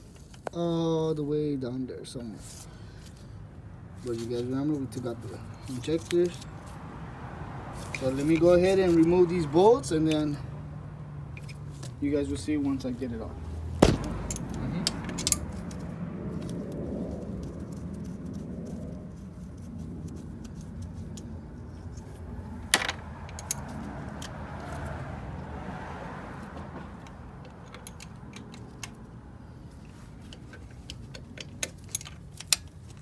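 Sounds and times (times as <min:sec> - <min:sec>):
socket and ratchet clicking: 0:13.8 - 0:15.8.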